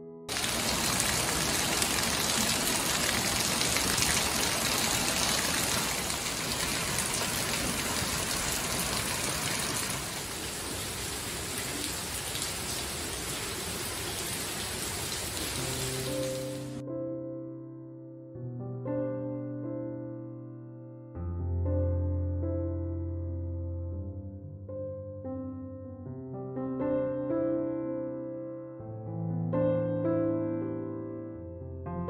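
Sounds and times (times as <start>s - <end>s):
heavy rain on leaves and patio: 0.3s - 16.8s.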